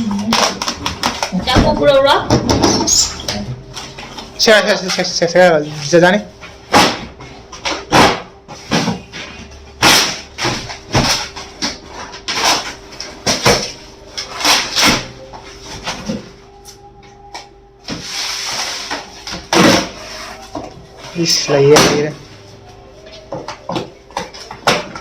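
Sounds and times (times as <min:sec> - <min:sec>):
objects knocking and clattering: 0:00.0 - 0:03.0, 0:23.2 - 0:25.0
scraping rustling noise: 0:18.0 - 0:19.2.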